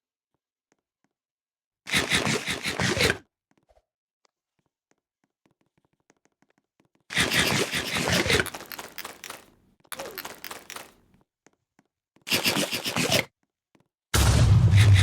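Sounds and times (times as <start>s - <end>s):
plastic bag crinkling: 7.8s - 11.1s.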